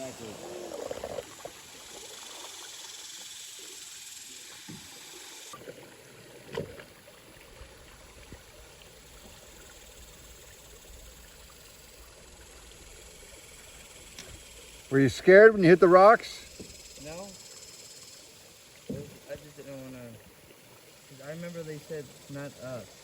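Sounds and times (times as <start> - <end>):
river water hissing: 0.0 - 23.0
short knock: 18.9 - 19.2.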